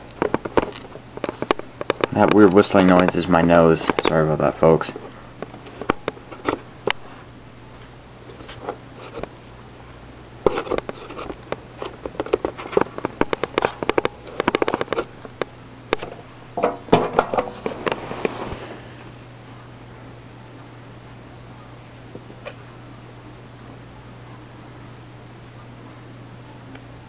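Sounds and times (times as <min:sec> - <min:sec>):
clicking and scraping of parts: 0:00.0 - 0:03.2, 0:10.4 - 0:18.4.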